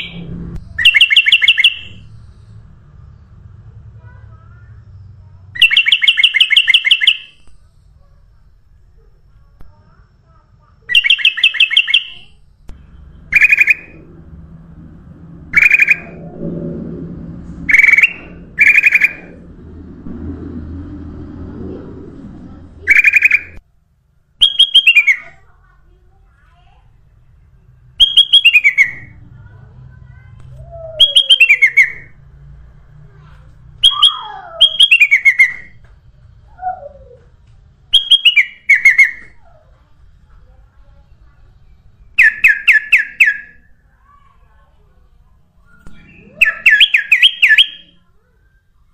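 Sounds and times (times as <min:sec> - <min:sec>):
low rumble: 0:00.0 - 0:00.8, 0:12.4 - 0:24.3
bulbul chirping: 0:10.9 - 0:14.1, 0:15.5 - 0:16.2, 0:24.4 - 0:25.3
low downward whistle: 0:15.3 - 0:23.6.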